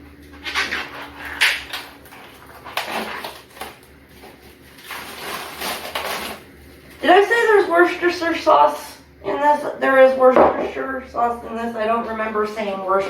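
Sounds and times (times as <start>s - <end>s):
meat package rustling: 0.7s - 7.0s.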